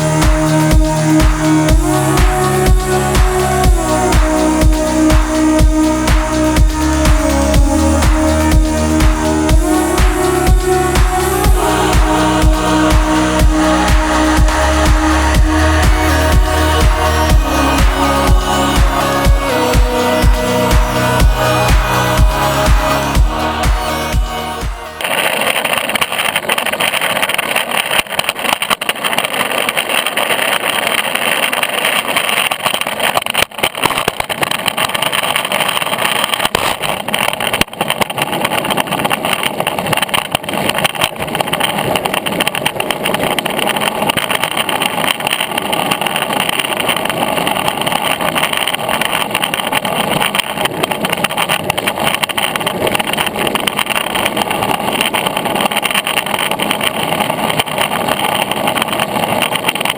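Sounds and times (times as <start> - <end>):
longboard wheels rumbling on pavement: 25.0 - 59.9.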